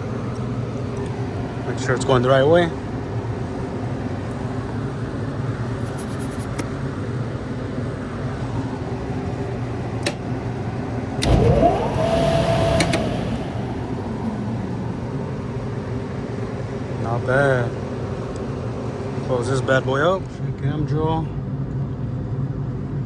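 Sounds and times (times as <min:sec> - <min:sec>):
blower motor hum: 0:08.0 - 0:20.3
sharp clicks: 0:11.2 - 0:14.7
rising whine: 0:11.2 - 0:17.7.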